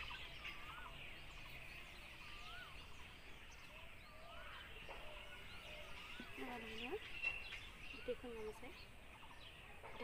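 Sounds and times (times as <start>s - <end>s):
bird whistled call: 2.1s - 8.9s.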